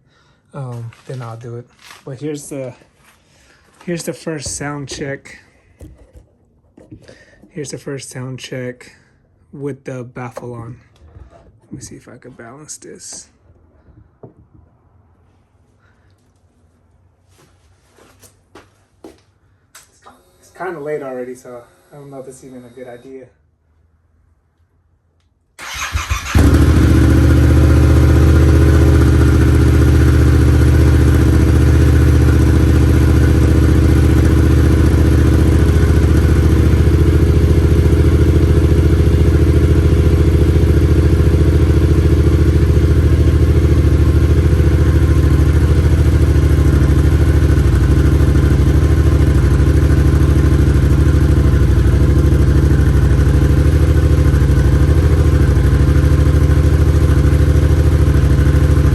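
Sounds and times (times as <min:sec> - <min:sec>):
motorcycle engine starting and idling: 0:03.4 - 0:08.2, 0:10.2 - 0:13.3, 0:25.6 - 0:58.9.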